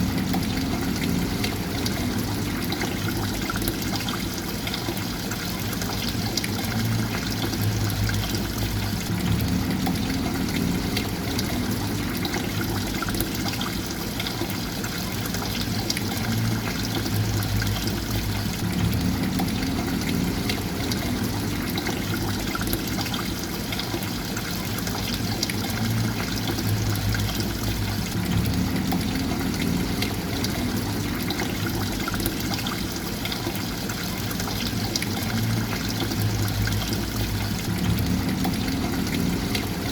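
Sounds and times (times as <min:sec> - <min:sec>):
water trickling and splashing: 0:00.0 - 0:39.9
low rumble: 0:06.8 - 0:13.2, 0:16.5 - 0:22.8, 0:25.9 - 0:32.3, 0:35.4 - 0:39.9.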